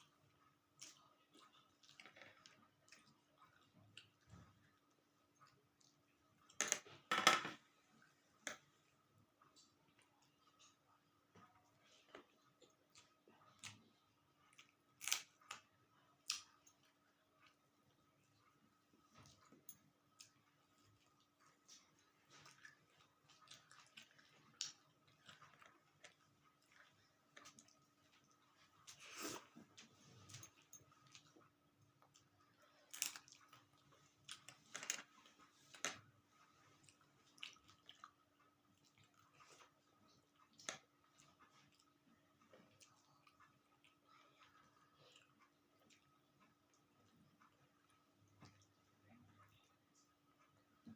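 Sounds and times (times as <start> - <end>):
chewing and wet mouth smacks: 36.7 - 42.0
mouth clicks and smacks chewing: 36.7 - 48.8.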